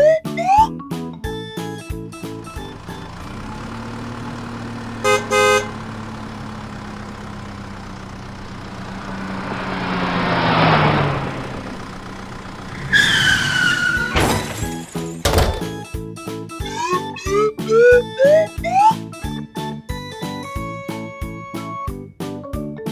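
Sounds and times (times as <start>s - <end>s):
cartoon vehicle engine passing: 2.1s - 15.8s
horn toots: 2.3s - 7.4s
high falling squeal: 8.4s - 15.3s.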